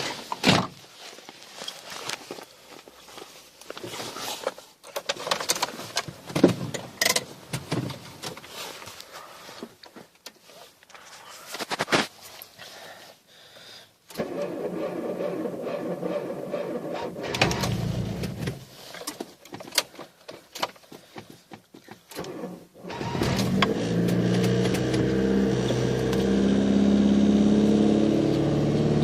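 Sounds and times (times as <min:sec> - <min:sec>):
rustling: 0:00.0 - 0:06.3, 0:08.0 - 0:13.2
car engine starting and idling: 0:14.1 - 0:18.7, 0:22.1 - 0:29.0.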